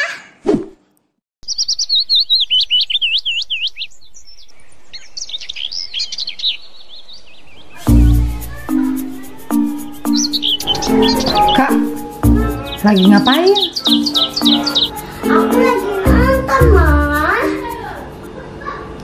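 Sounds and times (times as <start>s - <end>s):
small birds chirping: 1.4s - 17.9s
loud music with deep bass: 9.6s - 12.9s.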